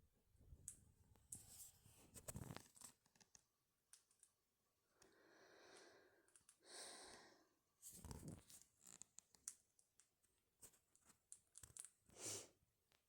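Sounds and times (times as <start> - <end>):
soft breathy sounds: 4.9 - 7.6.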